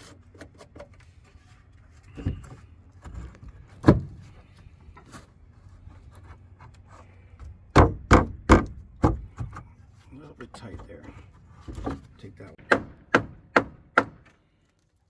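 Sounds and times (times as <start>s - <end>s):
wooden knocks and thumps: 2.1s - 4.4s, 7.4s - 9.7s, 10.5s - 14.3s.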